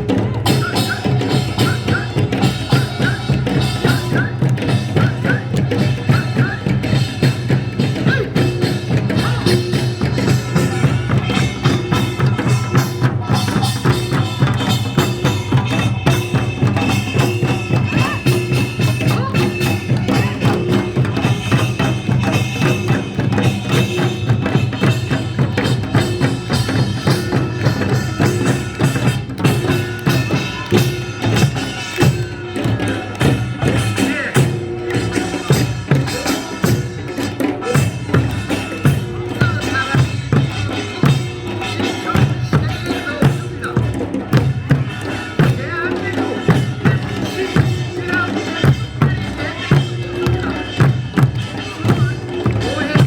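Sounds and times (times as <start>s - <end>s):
fast folk drumming and percussion: 0.0s - 53.0s.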